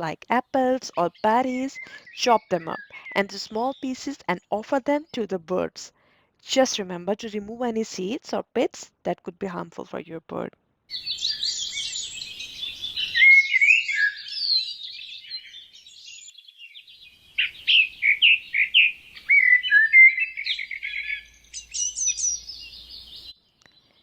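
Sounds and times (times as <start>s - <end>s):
small songbirds chirping and singing: 0.0s - 8.1s, 10.9s - 24.0s.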